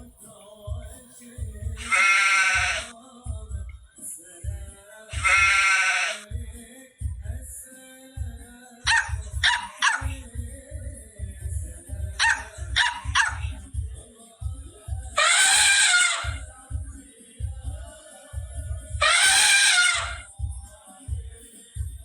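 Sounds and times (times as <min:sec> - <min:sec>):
background music with beat: 0:00.0 - 0:22.0
long loud call: 0:01.8 - 0:02.9, 0:05.1 - 0:06.3, 0:15.2 - 0:16.4, 0:19.0 - 0:20.3
dog barking: 0:08.9 - 0:10.2, 0:12.2 - 0:13.6, 0:15.2 - 0:16.4, 0:19.0 - 0:20.2.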